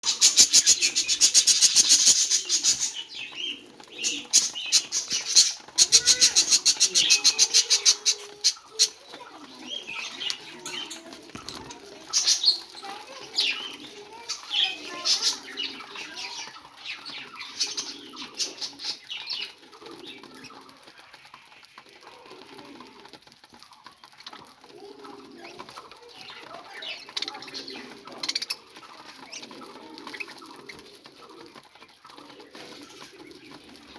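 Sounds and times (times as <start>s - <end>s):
budgerigar chirping: 0.0s - 3.1s.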